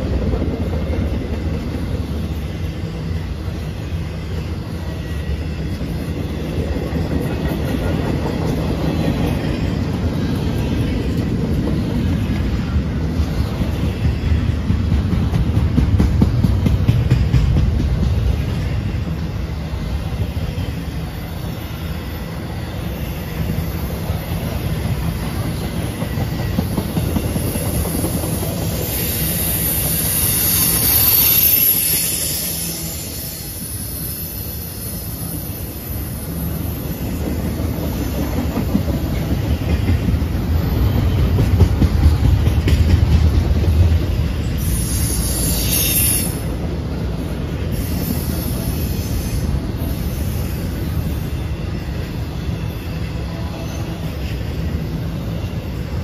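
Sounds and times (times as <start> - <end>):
freight train rumbling past: 0.0 - 56.0
high wheel squeal: 20.4 - 37.3, 44.2 - 55.8.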